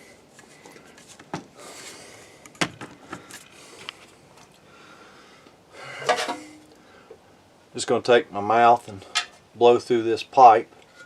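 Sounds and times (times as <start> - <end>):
metal parts handled: 6.0 - 6.6.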